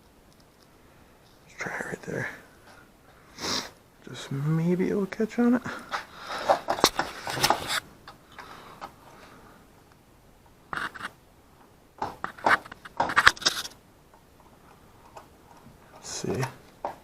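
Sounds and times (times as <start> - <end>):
tools clicking and scraping: 12.2 - 13.8.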